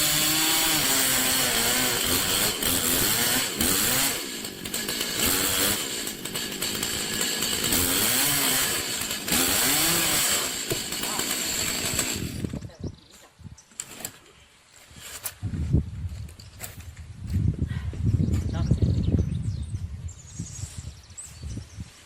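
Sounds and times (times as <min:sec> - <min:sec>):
chainsaw revving: 0:00.0 - 0:12.6.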